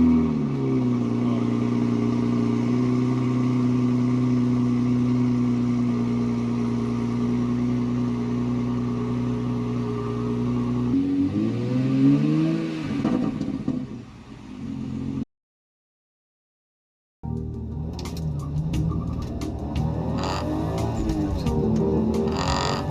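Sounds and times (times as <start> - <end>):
car engine idling: 0.9 - 10.9, 17.4 - 22.9.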